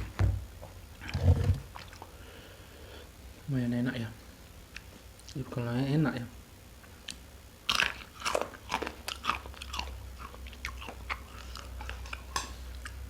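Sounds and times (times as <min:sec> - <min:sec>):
person chewing food: 0:00.6 - 0:02.3, 0:06.8 - 0:13.0.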